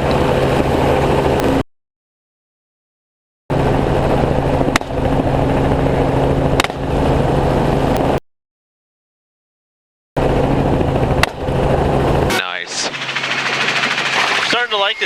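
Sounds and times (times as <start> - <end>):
helicopter engine and rotor: 0.0 - 1.6, 3.5 - 8.2, 10.2 - 15.0.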